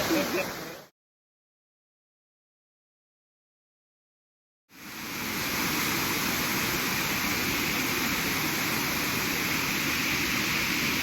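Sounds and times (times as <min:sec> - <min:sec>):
waterfall rushing: 0:00.0 - 0:00.9, 0:04.8 - 0:11.0.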